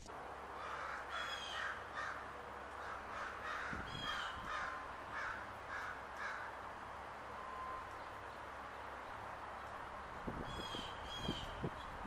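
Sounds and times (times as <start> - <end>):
birds making harsh calls: 0.6 - 6.6, 10.4 - 12.0.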